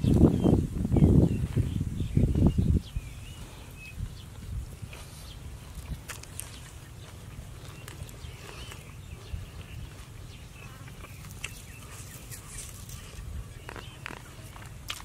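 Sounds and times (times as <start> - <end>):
birds calling: 0.0 - 15.0
person chewing and smacking lips: 4.8 - 15.0.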